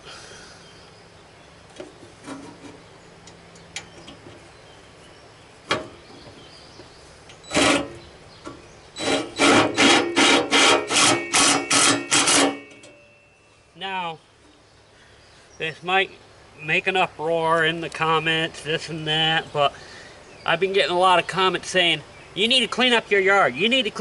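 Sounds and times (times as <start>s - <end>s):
hand tool scraping: 2.1s - 2.8s, 7.4s - 8.0s, 9.0s - 13.0s.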